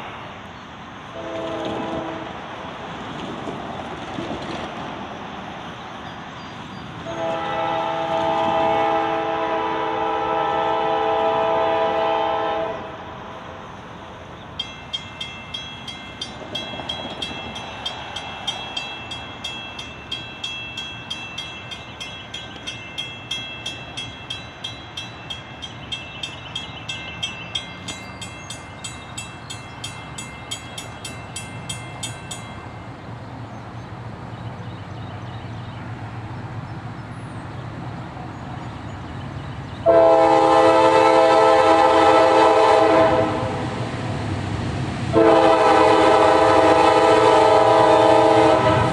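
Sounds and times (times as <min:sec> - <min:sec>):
diesel locomotive rumble: 0:00.0 - 0:48.9
locomotive air horn blast: 0:01.1 - 0:02.4, 0:07.0 - 0:13.1, 0:39.8 - 0:43.7, 0:45.1 - 0:48.9
railroad crossing bell ringing: 0:14.4 - 0:33.5.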